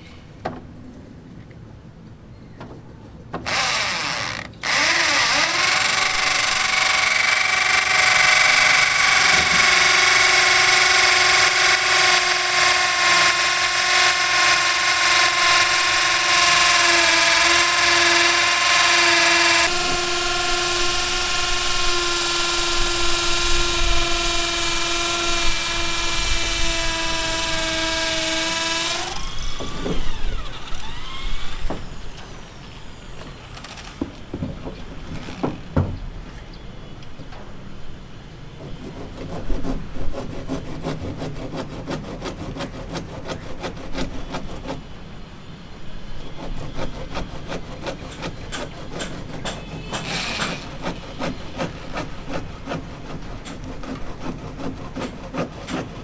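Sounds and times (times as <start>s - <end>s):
power tool whining: 3.4s - 34.4s, 35.0s - 35.9s, 46.4s - 56.0s.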